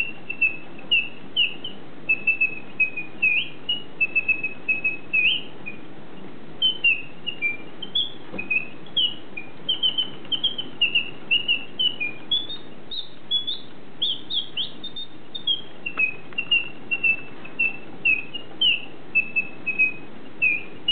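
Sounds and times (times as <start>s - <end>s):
bird chirping: 0.0s - 20.9s.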